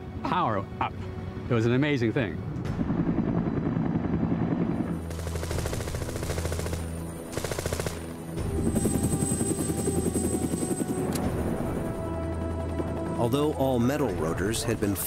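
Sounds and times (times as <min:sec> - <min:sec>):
low music drone: 0:00.0 - 0:15.0
rapid sharp bangs: 0:05.0 - 0:08.2.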